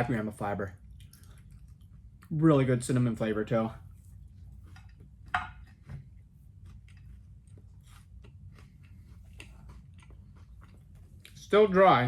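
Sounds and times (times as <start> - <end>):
person chewing crunchy bar: 3.9 - 11.5.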